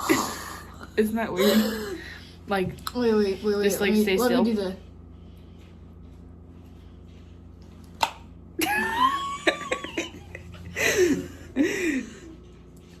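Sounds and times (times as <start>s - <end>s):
people laughing: 8.6s - 12.4s.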